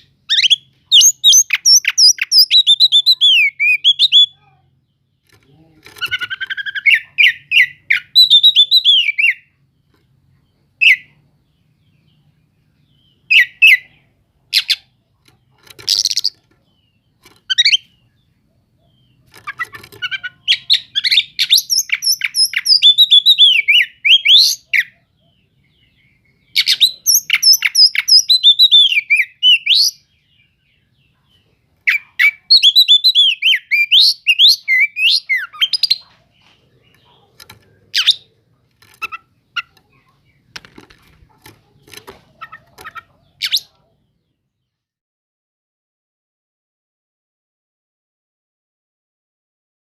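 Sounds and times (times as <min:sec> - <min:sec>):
bird singing whistles and chirps: 0:00.3 - 0:04.4, 0:06.1 - 0:09.5, 0:20.0 - 0:25.0, 0:26.0 - 0:30.6, 0:31.9 - 0:36.1.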